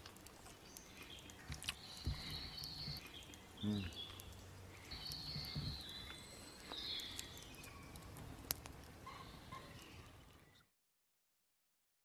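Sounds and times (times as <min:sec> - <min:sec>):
birds chirping and singing: 0:00.6 - 0:08.4.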